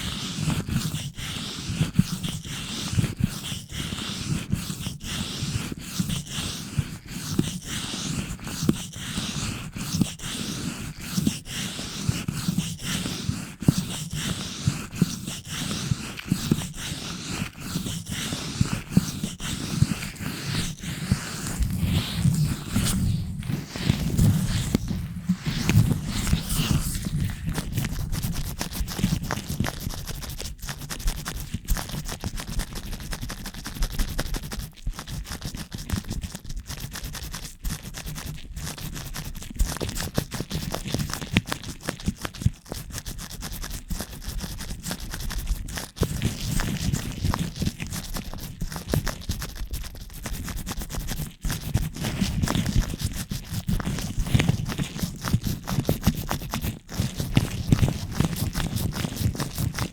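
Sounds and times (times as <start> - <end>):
gloved fingers scratching microphone: 4.2 - 59.9
microphone handling rumble: 21.4 - 28.5.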